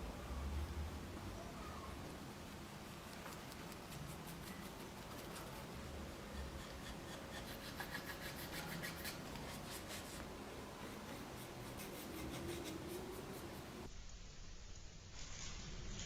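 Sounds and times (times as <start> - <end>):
hand tool scraping wood: 6.2 - 10.2.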